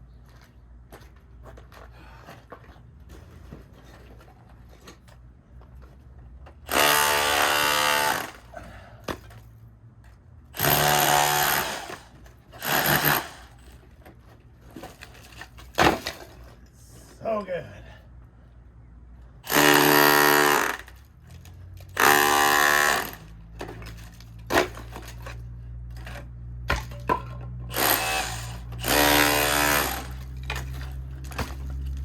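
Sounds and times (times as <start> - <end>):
power tool grinding plaster: 22.0 - 23.2, 27.7 - 30.2.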